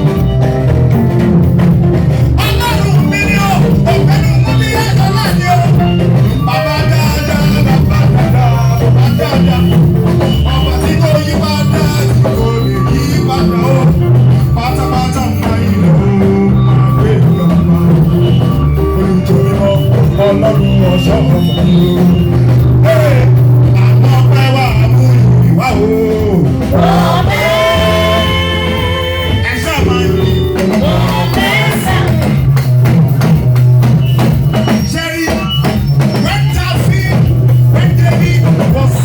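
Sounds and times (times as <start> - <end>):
heavy bass line: 0.0 - 39.0
praise band music: 0.0 - 39.0
people singing: 22.9 - 32.5.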